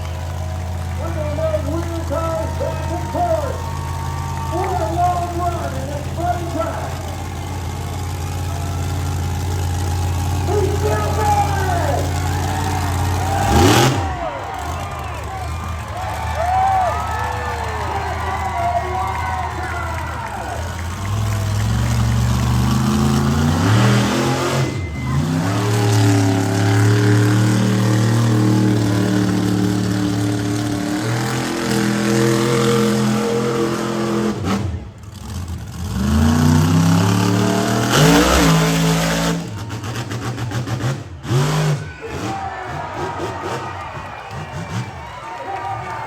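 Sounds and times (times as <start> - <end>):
truck engine revving hard: 0.0 - 46.0.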